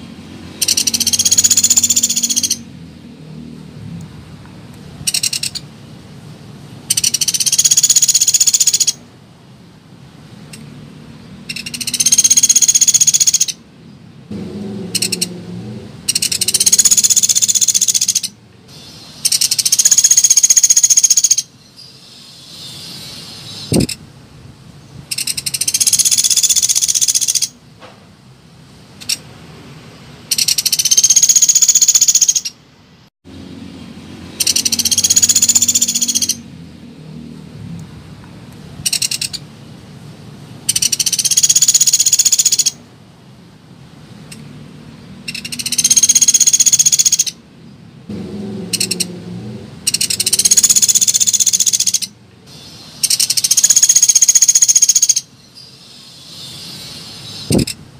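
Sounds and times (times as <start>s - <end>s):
bird chattering high-pitched: 0.5s - 2.7s, 5.1s - 5.7s, 6.9s - 9.0s, 11.5s - 13.6s, 15.0s - 15.3s, 16.1s - 24.0s, 25.1s - 27.6s, 30.3s - 32.6s, 34.4s - 36.5s, 38.8s - 39.4s, 40.6s - 42.8s, 45.2s - 47.4s, 48.8s - 49.1s, 49.8s - 57.8s
thump: 27.8s - 28.1s.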